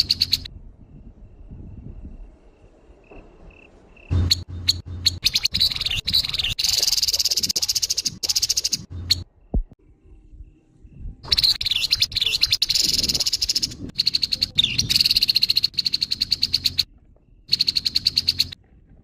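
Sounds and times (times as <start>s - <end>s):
bird rasping rattle call: 17.5s - 18.6s.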